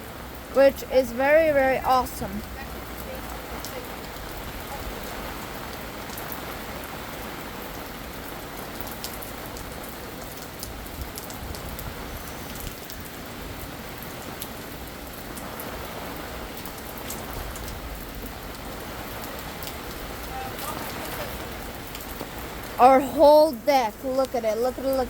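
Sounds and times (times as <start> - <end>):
rain splashing on surfaces: 0.0 - 25.0
drops ticking: 19.2 - 25.0.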